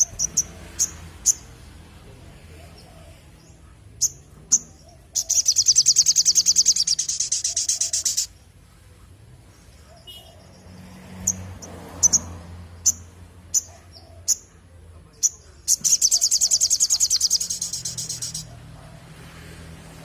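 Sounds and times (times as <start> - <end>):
bird calling with sharp high calls: 0.0 - 1.6, 2.5 - 8.5, 9.8 - 18.8
bird sharp chips: 4.0 - 8.3, 15.2 - 18.5
bird rapid high trill: 4.0 - 8.4, 15.7 - 18.5.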